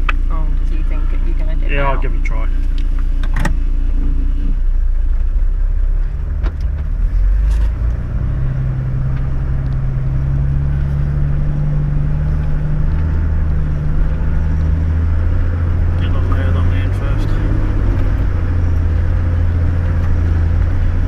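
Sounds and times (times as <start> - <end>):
engine revving: 5.3 - 21.0.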